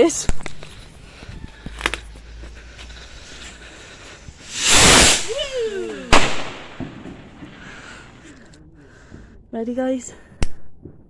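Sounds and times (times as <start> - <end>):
firework rocket whoosh: 4.2 - 8.4
firework bang: 4.4 - 8.3
person exclaiming: 5.2 - 6.2.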